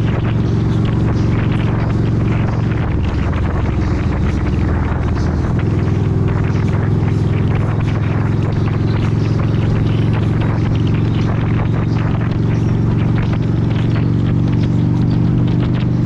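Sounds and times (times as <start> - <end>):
motorcycle engine running: 0.0 - 16.0
road noise: 0.0 - 16.0
wind noise: 0.0 - 16.0.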